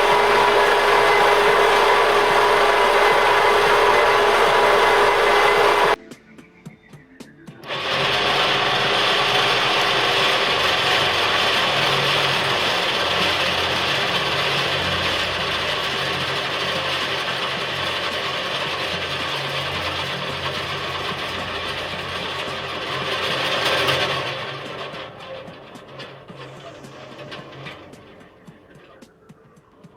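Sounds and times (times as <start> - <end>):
low hum: 0.0 - 6.0
vibrating sieve mechanical buzz: 0.0 - 6.0, 7.6 - 28.5.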